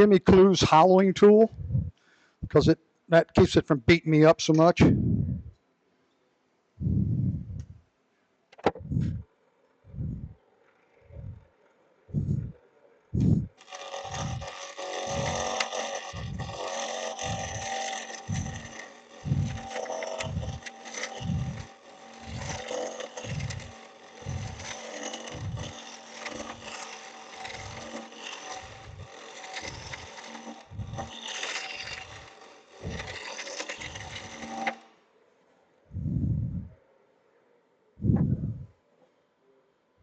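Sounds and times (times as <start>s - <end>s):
lathe tool cutting wood: 0.0s - 1.9s, 13.2s - 34.9s
low thumps: 4.8s - 5.5s, 6.8s - 7.8s, 8.7s - 9.2s, 12.1s - 12.6s, 13.2s - 13.6s, 36.0s - 36.8s, 38.0s - 38.7s.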